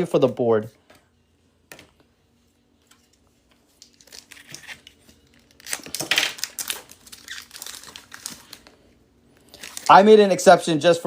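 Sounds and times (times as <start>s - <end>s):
foil wrapper tearing and crinkling: 3.8s - 8.7s, 9.4s - 10.1s.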